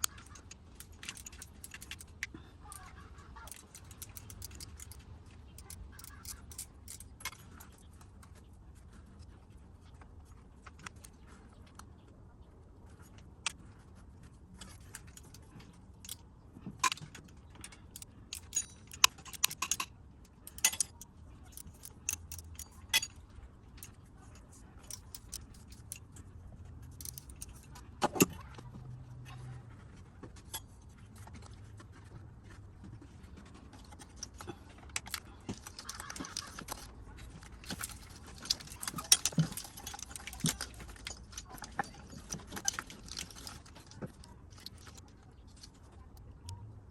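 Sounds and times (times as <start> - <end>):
metal tools clinking: 0.0 - 7.8, 16.8 - 28.6, 33.4 - 45.7.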